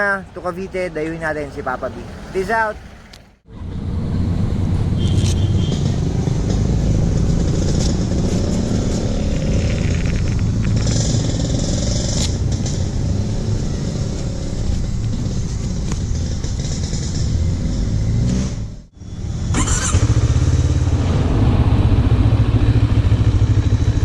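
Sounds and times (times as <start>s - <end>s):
wind and road noise: 0.0s - 24.0s
motorcycle engine running: 5.3s - 24.0s.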